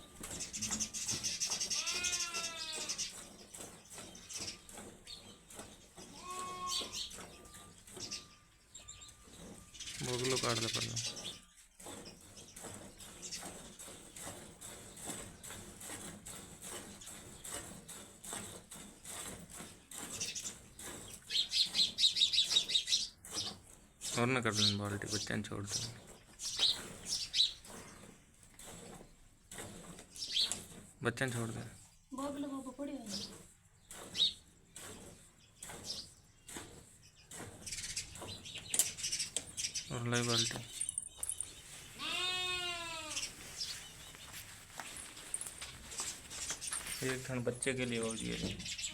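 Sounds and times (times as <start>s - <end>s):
small bird chirping: 0.0s - 14.2s, 19.8s - 28.2s, 30.1s - 30.7s, 31.4s - 34.5s, 35.4s - 48.9s
milk squirting into a bucket: 9.3s - 32.0s.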